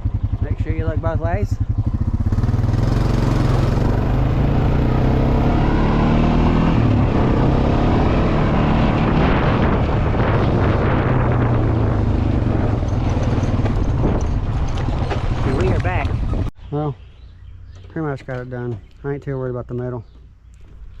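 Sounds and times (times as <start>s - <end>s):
small vehicle engine running: 0.0s - 16.4s.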